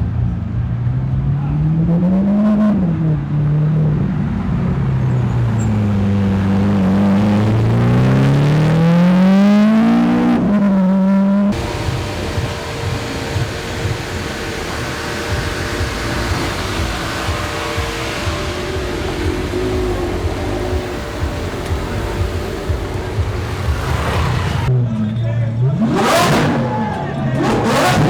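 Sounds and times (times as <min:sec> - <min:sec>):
supercar engine revving: 0:00.0 - 0:24.9, 0:25.5 - 0:28.0
steady hum: 0:11.5 - 0:24.7.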